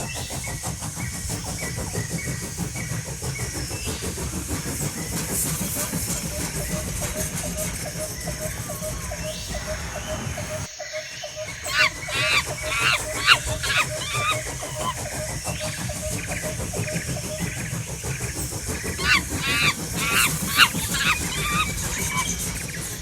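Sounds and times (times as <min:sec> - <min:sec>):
toy train clicking: 0:11.8 - 0:23.0.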